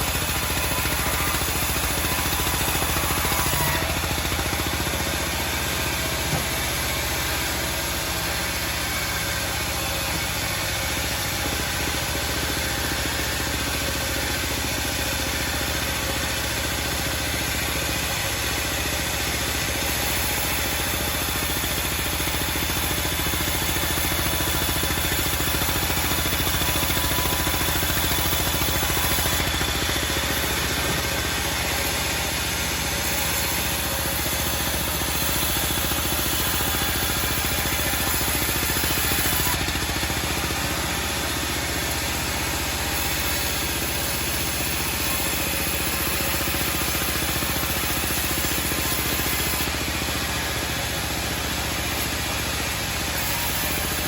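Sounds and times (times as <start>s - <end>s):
band sawmill running: 0.0s - 54.0s.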